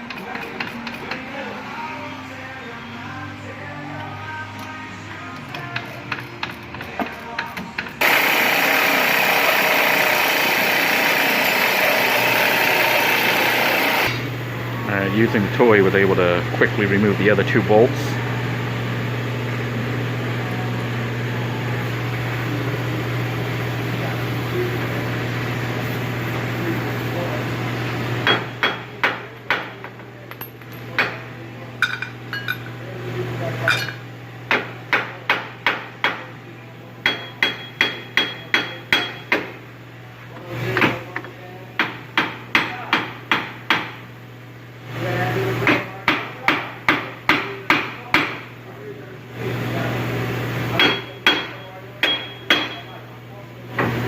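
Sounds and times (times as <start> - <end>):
hammer striking metal: 28.2 - 31.2, 37.0 - 39.5, 50.8 - 53.0.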